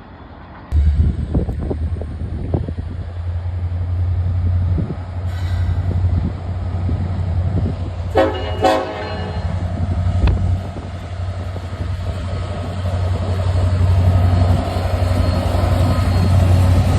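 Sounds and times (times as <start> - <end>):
train rumbling by: 0.0 - 16.9
locomotive air horn blasts: 8.1 - 9.7.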